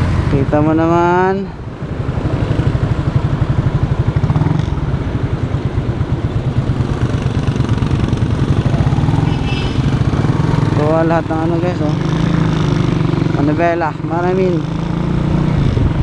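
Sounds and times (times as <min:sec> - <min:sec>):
motorcycle engine idling: 0:03.0 - 0:12.4.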